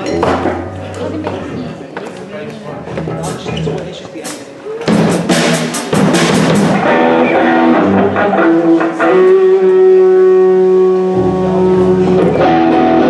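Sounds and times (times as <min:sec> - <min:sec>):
drum hits: 0:00.0 - 0:01.5, 0:04.9 - 0:07.2
bass line: 0:00.0 - 0:01.8
guitar notes ringing: 0:00.0 - 0:01.8, 0:06.8 - 0:13.0.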